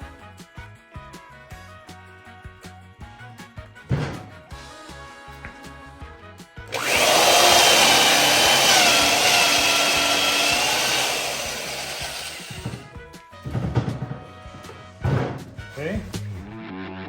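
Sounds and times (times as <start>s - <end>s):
electric drill boring into wood: 6.7s - 12.9s.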